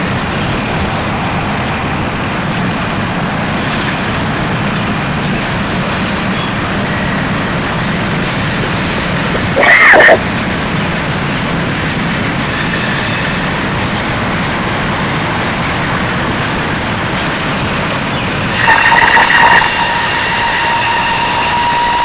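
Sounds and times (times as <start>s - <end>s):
freight train rolling past: 0.0s - 22.0s
person exclaiming: 9.6s - 10.2s.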